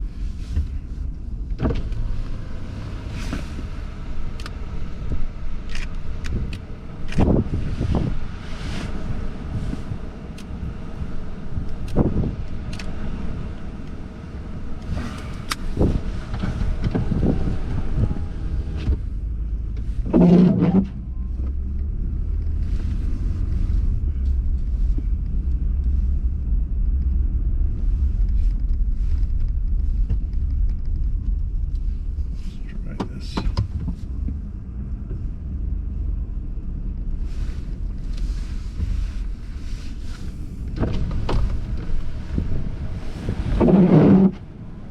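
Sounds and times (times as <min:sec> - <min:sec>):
car driving rumble: 0:00.0 - 0:44.9.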